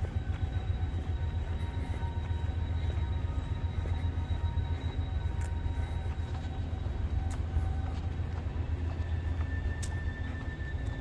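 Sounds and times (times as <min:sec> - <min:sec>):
faint high steady tone: 0:00.0 - 0:11.0
freight train rumbling past: 0:00.0 - 0:11.0.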